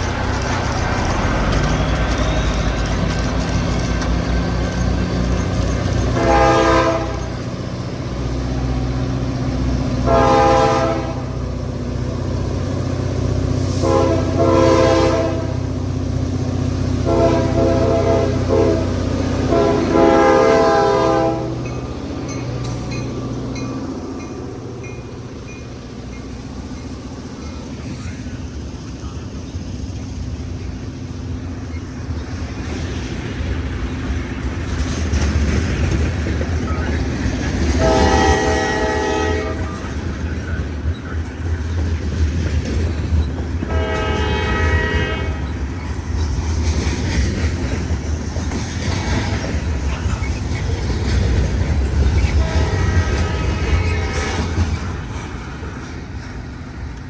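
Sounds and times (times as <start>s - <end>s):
train wheel clatter: 0.0s - 11.0s, 11.6s - 57.0s
diesel locomotive engine rumbling: 0.0s - 57.0s
train air horn blasts: 6.2s - 7.3s, 10.0s - 11.4s, 13.6s - 15.7s, 17.0s - 21.7s, 37.7s - 39.8s, 43.6s - 45.5s, 52.3s - 54.6s.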